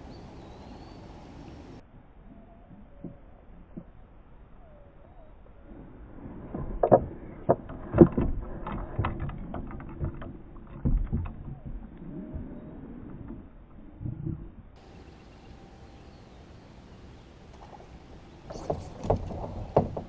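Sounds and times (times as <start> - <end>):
gear knocking on kayak hull: 18.5 - 20.0.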